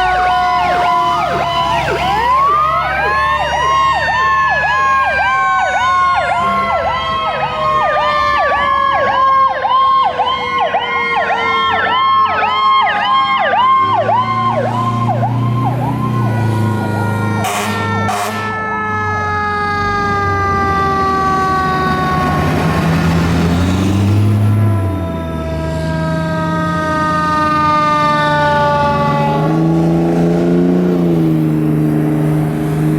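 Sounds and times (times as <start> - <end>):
electronic siren yelp: 0.0 - 22.8
mechanical siren wail winding down: 0.0 - 31.3
heavy truck engine rumbling: 0.0 - 32.9.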